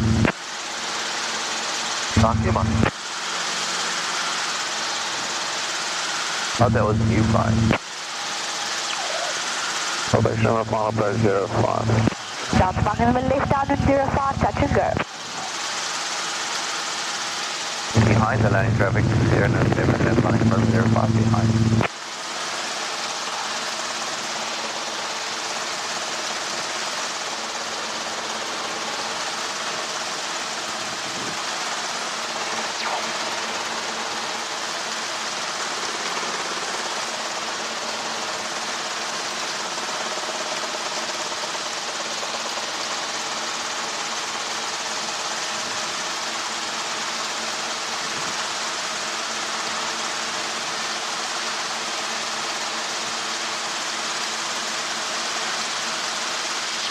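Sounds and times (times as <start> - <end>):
helicopter cabin noise: 0.0 - 0.4, 2.1 - 4.0, 6.5 - 8.0, 8.7 - 15.6, 17.9 - 21.9, 26.7 - 38.9.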